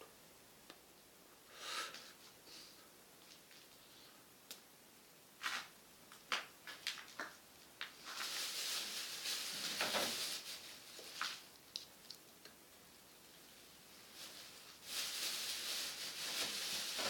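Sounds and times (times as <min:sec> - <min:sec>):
hissing rustle: 0:08.0 - 0:12.2, 0:13.3 - 0:17.0.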